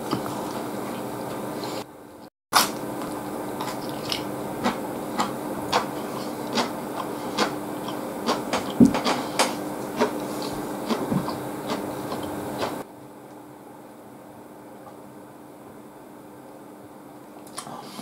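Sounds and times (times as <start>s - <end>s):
person chewing: 2.6s - 12.8s.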